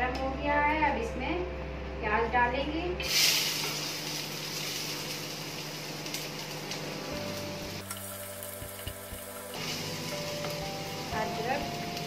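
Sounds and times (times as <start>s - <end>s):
onions sizzling in hot oil: 3.0s - 12.0s.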